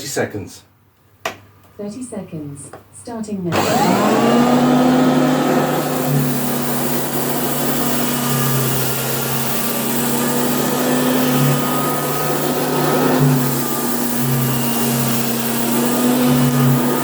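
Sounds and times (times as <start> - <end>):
upright vacuum cleaner running: 3.5 - 17.0.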